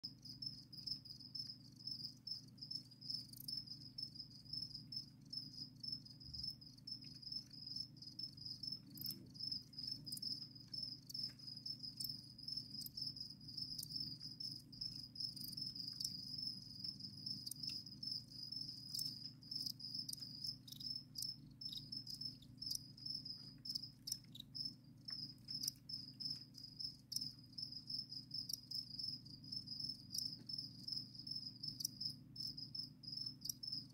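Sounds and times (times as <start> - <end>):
crickets chirping: 0.0 - 33.9
faint ticks: 8.9 - 13.0, 15.3 - 18.2, 18.9 - 27.4.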